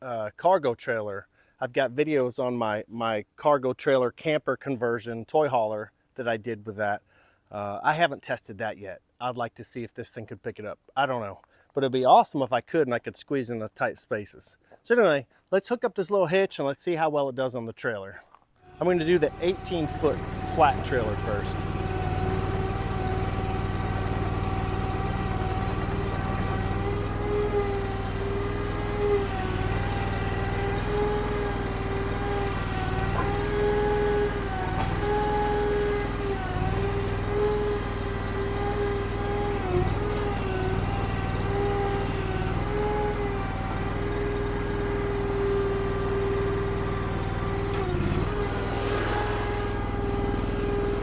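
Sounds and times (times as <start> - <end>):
skid steer engine running: 18.6 - 51.0.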